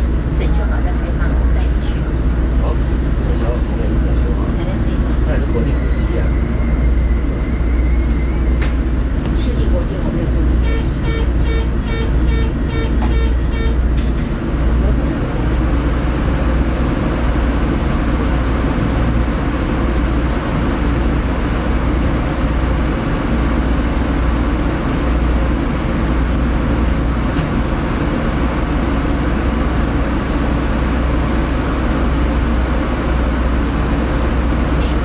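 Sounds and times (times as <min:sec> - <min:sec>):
diesel railcar engine rumbling: 0:00.0 - 0:35.0.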